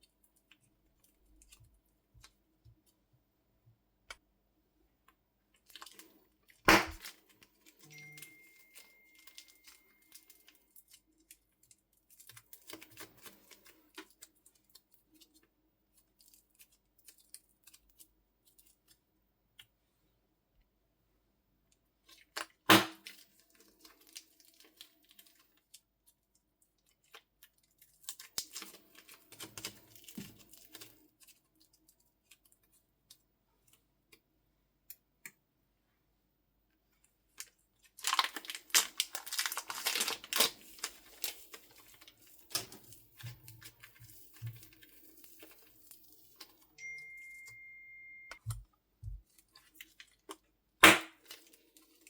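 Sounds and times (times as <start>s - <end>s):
slime squished and torn by hand: 6.6s - 7.2s, 37.9s - 41.4s.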